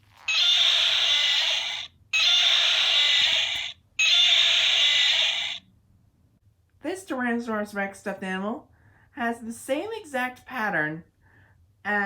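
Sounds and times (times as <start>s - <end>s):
toy dinosaur roar: 0.3s - 5.6s.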